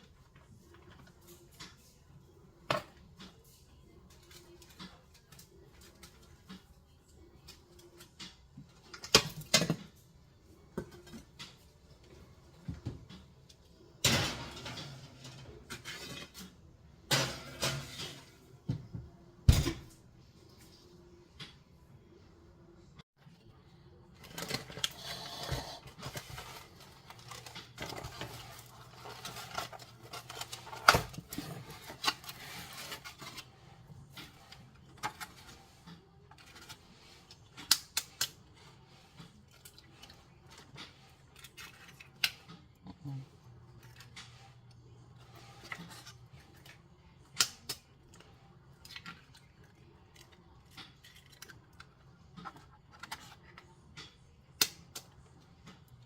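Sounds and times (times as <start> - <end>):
rustling and handling noises: 20.1 - 56.0.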